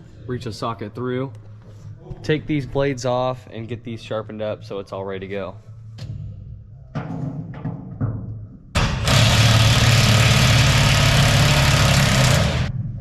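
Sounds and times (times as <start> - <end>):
impact wrench running: 8.8 - 12.8.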